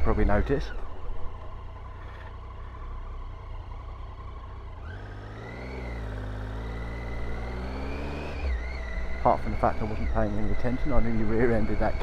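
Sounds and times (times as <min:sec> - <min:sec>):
low wind rumble: 0:00.0 - 0:04.7
motorcycle engine running: 0:00.0 - 0:12.0.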